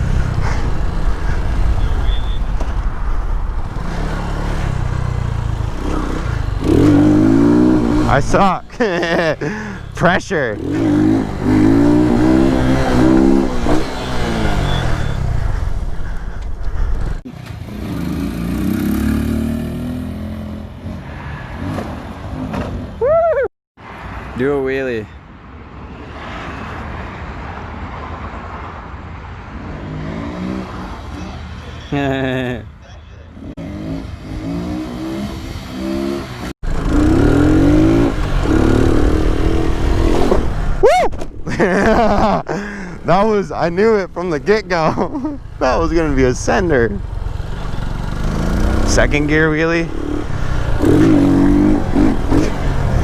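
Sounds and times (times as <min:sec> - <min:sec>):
motorcycle engine revving: 0:00.0 - 0:20.9, 0:33.4 - 0:40.8, 0:41.5 - 0:53.0.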